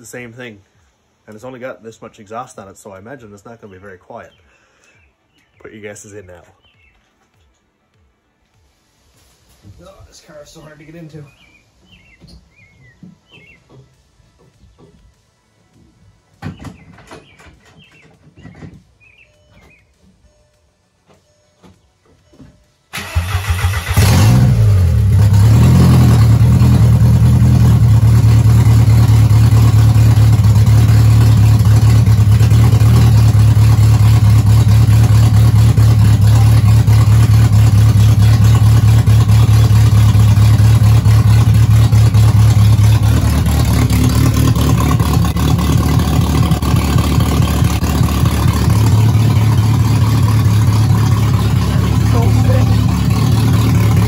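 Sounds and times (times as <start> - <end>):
race car engine starting: 22.9 - 54.0
loud choppy engine idle: 25.1 - 54.0.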